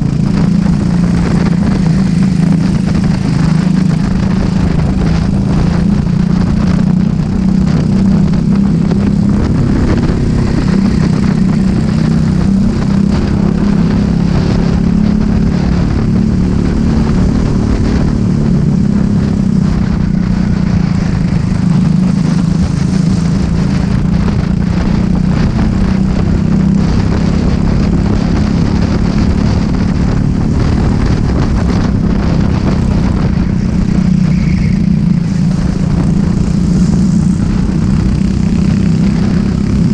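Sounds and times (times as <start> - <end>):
kart engine running: 0.0 - 39.9.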